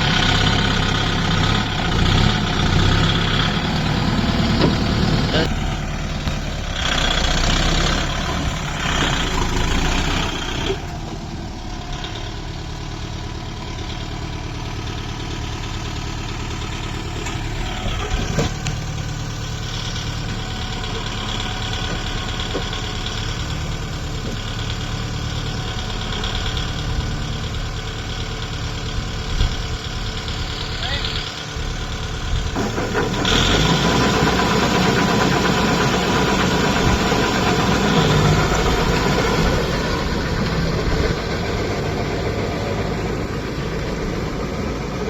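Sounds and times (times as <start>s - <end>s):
diesel tractor engine idling: 0.0s - 45.0s.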